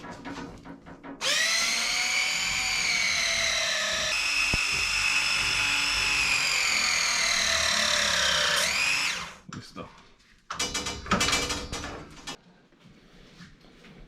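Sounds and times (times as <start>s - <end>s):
electric motor whine: 1.2s - 9.4s.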